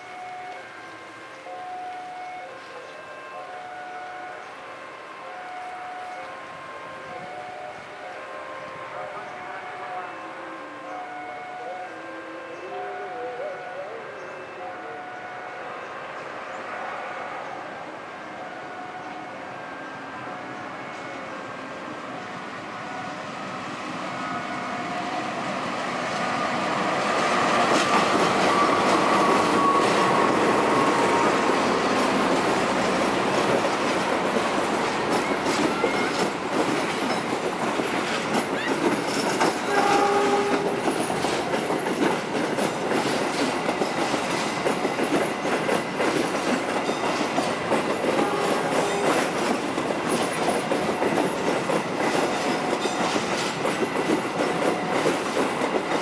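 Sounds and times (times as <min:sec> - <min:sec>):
train horn blast: 0:00.0 - 0:21.5, 0:39.6 - 0:41.5, 0:48.2 - 0:49.4
diesel locomotive passing: 0:00.0 - 0:56.0
wheels clattering over rail joints: 0:27.4 - 0:56.0.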